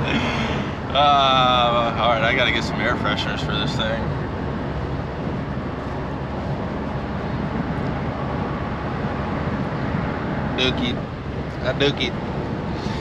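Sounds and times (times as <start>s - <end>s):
truck engine and road noise: 0.0s - 13.0s.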